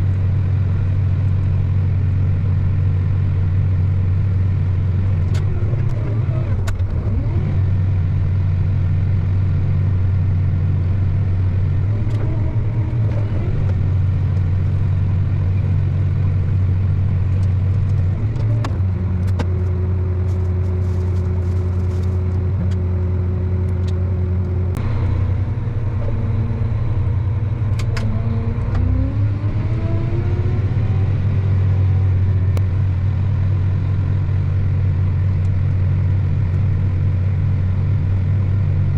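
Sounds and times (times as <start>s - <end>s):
vehicle engine droning: 0.0s - 38.9s
sharp clicks and rattles: 17.2s - 23.0s.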